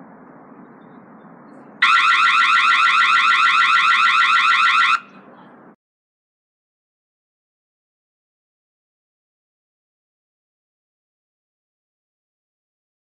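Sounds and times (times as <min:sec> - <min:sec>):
electronic siren warbling: 0:01.8 - 0:05.1.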